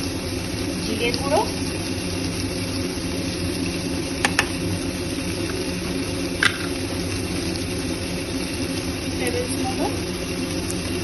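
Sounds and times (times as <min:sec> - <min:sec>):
kitchen cooking hum and hiss: 0:00.0 - 0:11.0.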